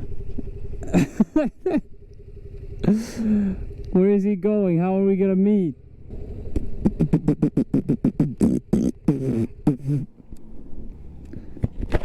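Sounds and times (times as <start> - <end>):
man making rapid vocal sounds: 6.8 - 10.1.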